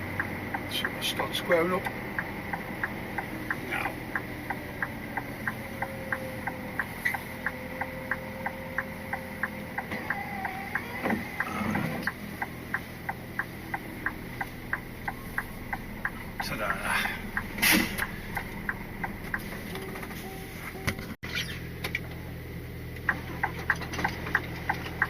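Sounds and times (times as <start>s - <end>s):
diesel engine hum: 0.0s - 25.0s
reversing warning beeps: 1.8s - 21.2s
rough noisy sound: 10.7s - 20.6s.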